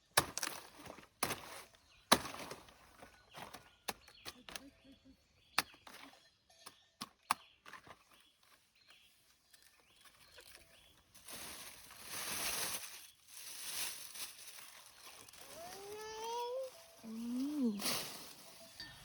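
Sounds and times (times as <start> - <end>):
leaves and stalks rustling: 9.6 - 19.0.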